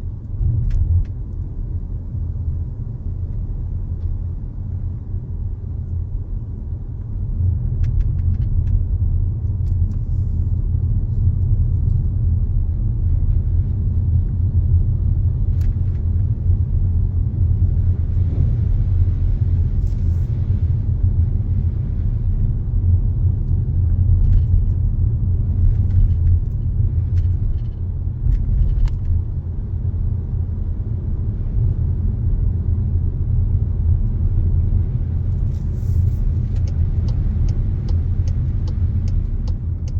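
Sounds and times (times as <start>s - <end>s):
car driving rumble: 0.0s - 39.9s
faint ticks: 36.1s - 39.9s.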